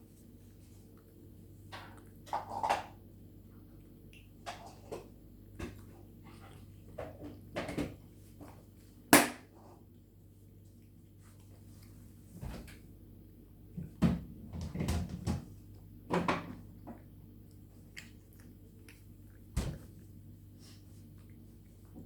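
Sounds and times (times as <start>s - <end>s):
cat eating: 0.0s - 14.5s, 15.4s - 22.0s.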